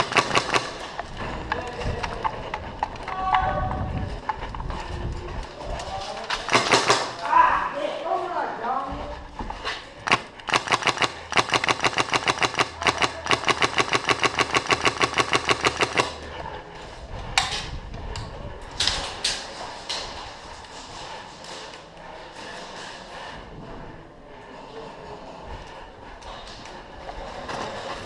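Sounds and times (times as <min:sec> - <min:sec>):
airsoft gun firing: 0:00.0 - 0:00.9, 0:06.5 - 0:07.2, 0:10.1 - 0:16.2.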